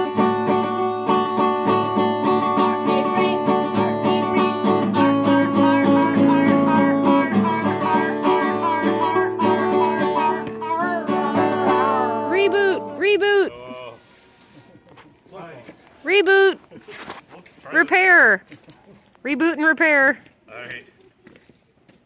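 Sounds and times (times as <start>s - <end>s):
acoustic guitar strumming: 0.0s - 14.2s
instruments playing a tune: 0.0s - 14.8s.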